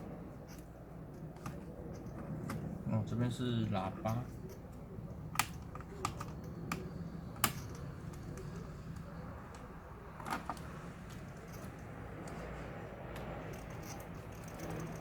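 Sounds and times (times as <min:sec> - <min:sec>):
plastic parts clicking: 0:04.1 - 0:09.6.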